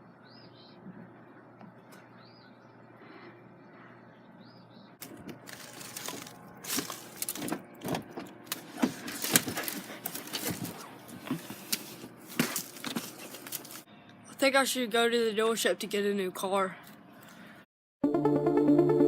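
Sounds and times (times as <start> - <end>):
objects rattling and clicking: 5.0 - 7.6, 8.5 - 13.9.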